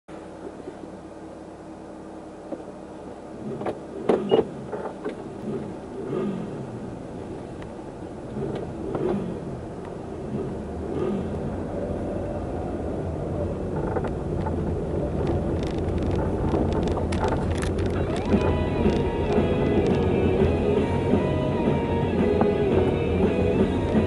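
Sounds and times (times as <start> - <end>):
car engine and road rumble: 0.1 - 24.0
sharp clicks: 15.2 - 20.1.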